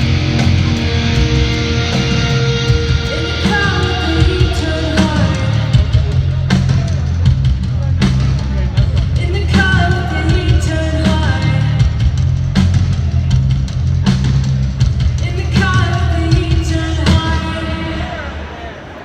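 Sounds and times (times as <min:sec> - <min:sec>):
drum hits: 0:00.0 - 0:10.7
sung vocals: 0:00.0 - 0:12.8, 0:15.1 - 0:18.9
live rock band playing: 0:00.0 - 0:18.0.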